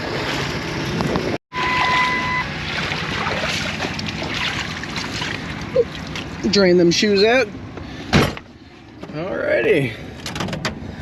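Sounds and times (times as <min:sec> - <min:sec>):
sloshing water: 0:00.0 - 0:06.6
electronic beep: 0:01.5 - 0:02.5.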